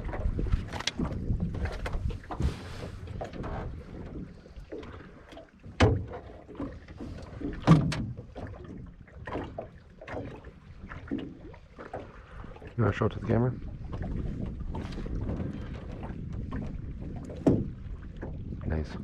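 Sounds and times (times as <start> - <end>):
wind on microphone: 0.0 - 4.7, 12.3 - 19.0.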